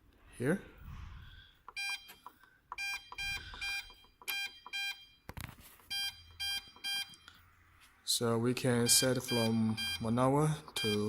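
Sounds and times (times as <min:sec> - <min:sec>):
short electronic beeps: 0:05.9 - 0:07.3, 0:08.8 - 0:11.0.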